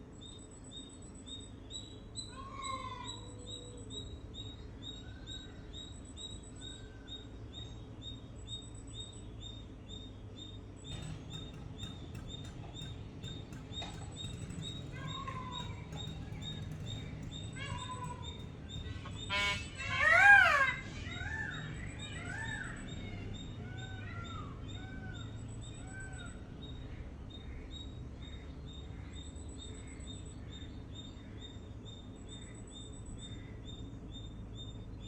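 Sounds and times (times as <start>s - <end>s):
birds chirping: 7.6s - 35.0s
low background rumble: 10.8s - 26.3s
lower arched bird calls: 10.8s - 34.8s
faint clicks: 10.9s - 19.9s.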